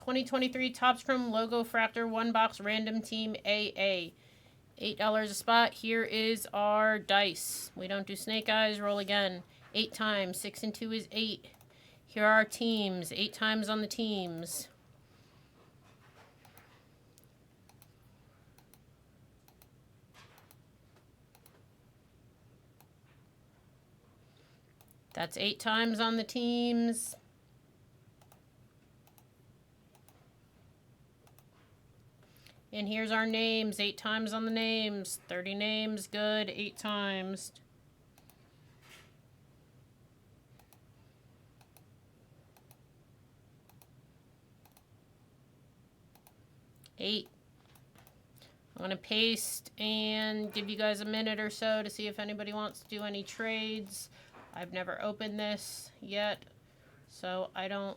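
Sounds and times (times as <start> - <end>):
computer mouse clicks: 11.5 - 11.7, 16.4 - 21.7, 22.8 - 23.0, 24.7 - 25.2, 28.2 - 28.4, 29.0 - 29.3, 29.9 - 30.2, 31.2 - 31.6, 38.2 - 38.4, 40.6 - 40.9, 41.6 - 41.9, 42.5 - 42.8, 43.7 - 44.0, 44.6 - 44.9, 46.1 - 48.5, 52.7 - 53.1.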